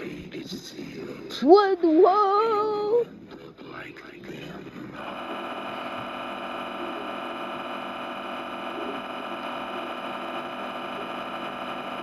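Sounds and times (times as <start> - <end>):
steady drone of held tones: 5.0 - 12.0.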